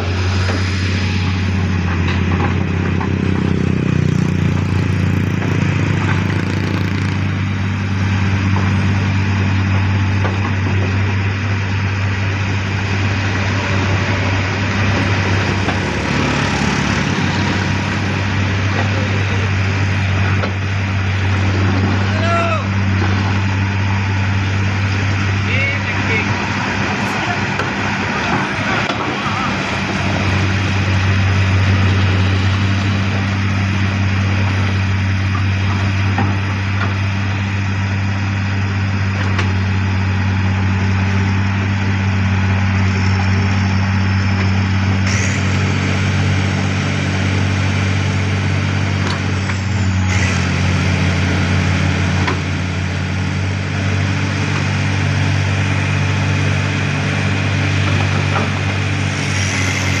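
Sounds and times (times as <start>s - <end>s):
excavator diesel drone: 0.0s - 60.0s.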